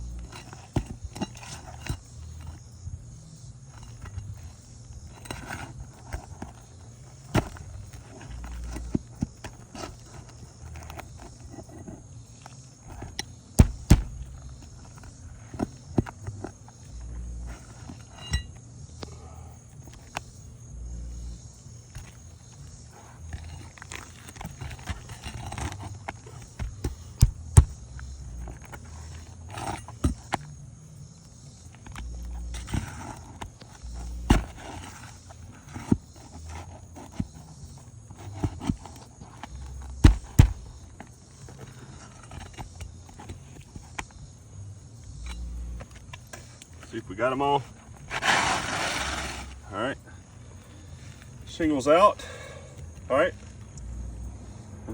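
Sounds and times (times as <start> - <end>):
pry bar scraping: 0.0 - 52.5
low rumbles: 13.6 - 14.7, 26.7 - 29.2.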